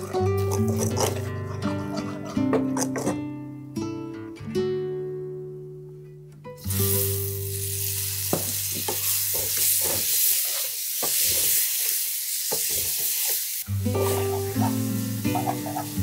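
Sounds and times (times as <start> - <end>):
tomatoes sizzling in oil: 6.6 - 16.0.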